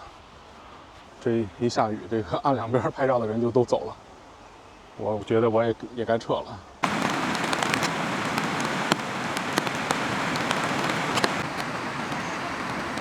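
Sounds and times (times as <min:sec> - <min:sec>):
steady rain hiss: 0:06.6 - 0:13.0
raindrops ticking close by: 0:06.8 - 0:13.0.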